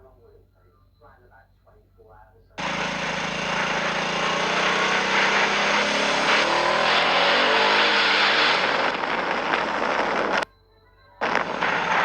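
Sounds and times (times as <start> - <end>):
car engine: 2.6 - 10.4, 11.2 - 12.0
road noise: 2.6 - 10.4, 11.2 - 12.0.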